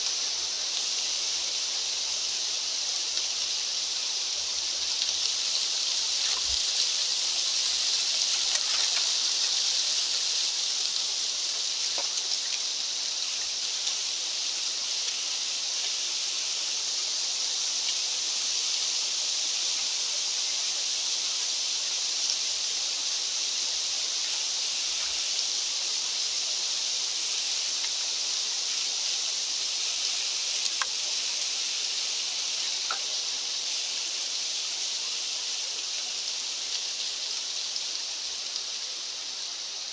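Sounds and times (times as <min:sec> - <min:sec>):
high-pitched outdoor hiss: 0:00.0 - 0:39.9
faint ticks: 0:04.8 - 0:13.0, 0:24.2 - 0:25.4, 0:30.5 - 0:31.4, 0:32.6 - 0:33.3.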